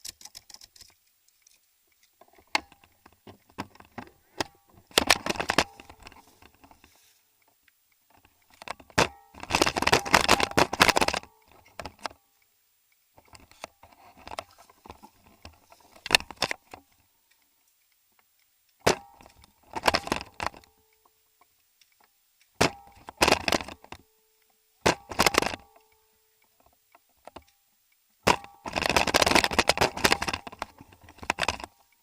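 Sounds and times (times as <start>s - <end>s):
clattering bursts of rapid cracks: 0.0s - 6.9s, 8.1s - 12.2s, 18.8s - 20.7s, 22.6s - 24.0s, 24.8s - 25.8s, 28.2s - 31.9s
sharp cracks: 28.2s - 31.9s.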